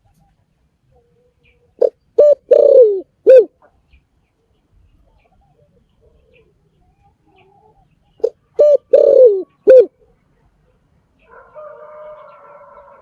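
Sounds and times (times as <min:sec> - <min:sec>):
dove cooing: 0:01.0 - 0:03.7, 0:07.2 - 0:10.2.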